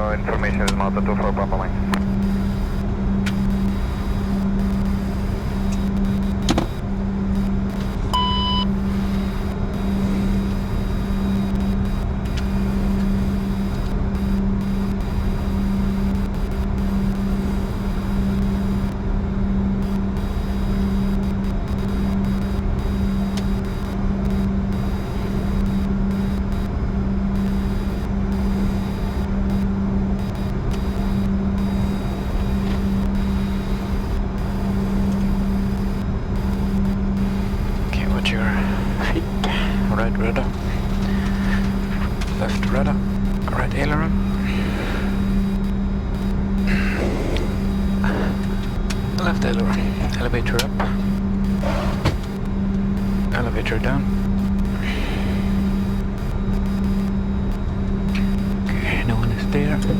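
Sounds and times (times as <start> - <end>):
jet engines idling drone: 0.0 - 59.9
short electronic beep: 8.1 - 8.7.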